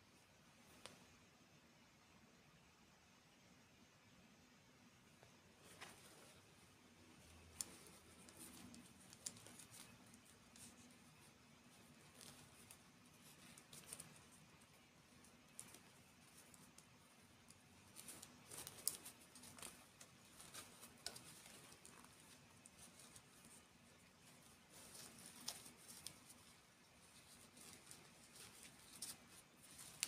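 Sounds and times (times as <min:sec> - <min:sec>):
low background hum: 0:00.0 - 0:30.0
small clicks and ticks: 0:07.0 - 0:30.0.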